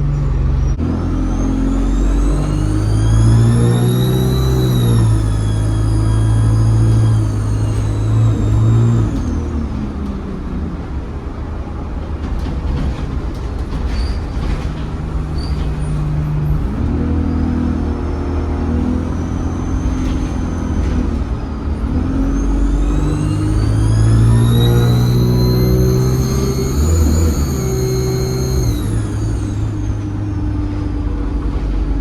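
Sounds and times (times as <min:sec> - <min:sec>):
bus engine: 0:00.0 - 0:32.0
turbo whistle: 0:00.6 - 0:09.6, 0:22.0 - 0:30.1.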